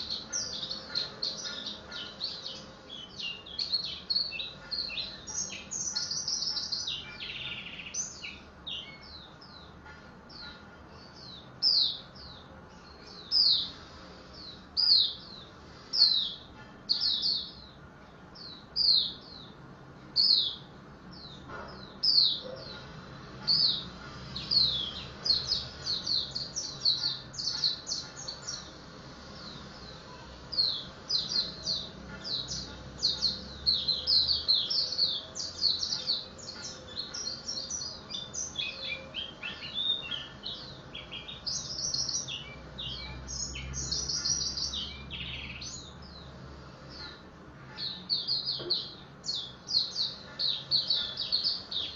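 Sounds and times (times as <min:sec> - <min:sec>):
bird chirping: 0:00.0 - 0:51.9.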